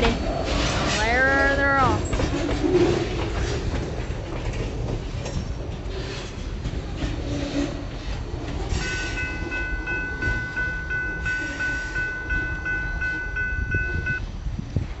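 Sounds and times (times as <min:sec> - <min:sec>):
freight train cars rolling on rails: 0:00.0 - 0:15.0
pulsing electronic ringing: 0:08.8 - 0:14.2.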